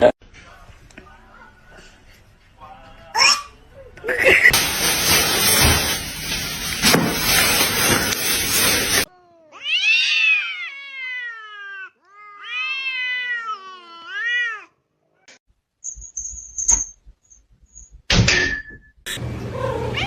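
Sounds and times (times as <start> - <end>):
cat yowling: 9.1 - 14.8.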